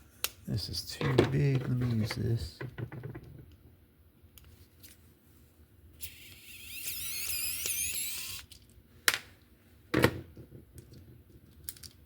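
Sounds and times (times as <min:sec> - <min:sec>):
screwdriver scraping plastic squeal: 0:06.0 - 0:08.5.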